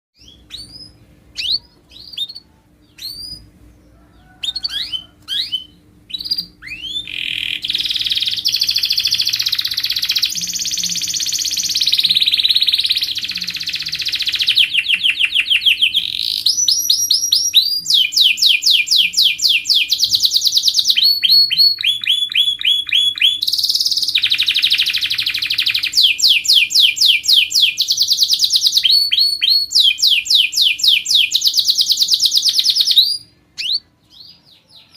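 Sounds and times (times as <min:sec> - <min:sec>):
canary singing trills: 0:00.2 - 0:34.9
faint steady hum: 0:00.2 - 0:34.9.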